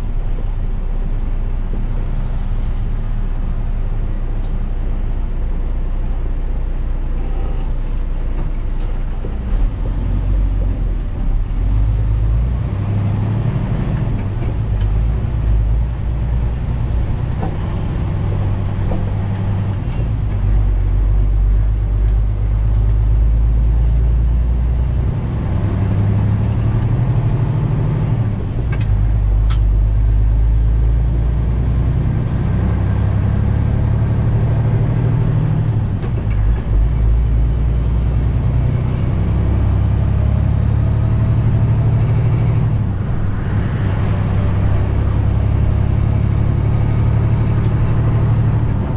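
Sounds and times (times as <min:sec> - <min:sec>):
truck diesel engine running: 0:00.0 - 0:48.9
sharp click: 0:29.5 - 0:29.7.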